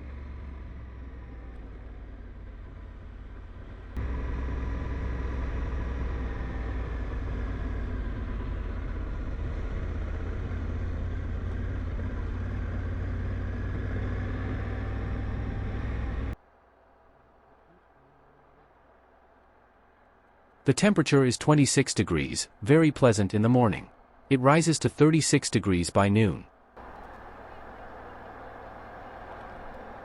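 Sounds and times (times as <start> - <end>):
motorcycle engine and road rumble: 0.0 - 18.8, 26.8 - 30.0.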